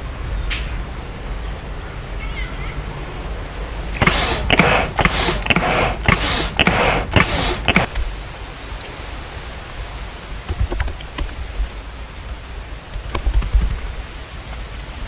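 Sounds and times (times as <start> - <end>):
steady hiss: 3.9 - 8.0
piston air pump strokes: 4.0 - 7.9.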